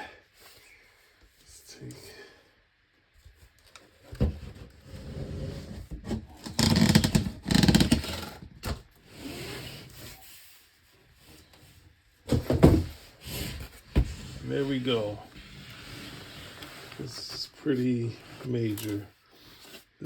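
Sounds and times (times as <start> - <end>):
book scraping out of box: 13.2 - 17.3.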